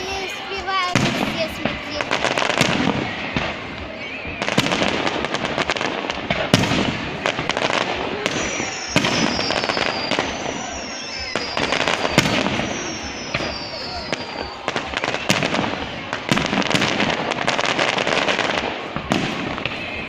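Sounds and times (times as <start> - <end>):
fireworks bangs and crackling: 0.0 - 20.0
fireworks whistling: 0.0 - 20.0.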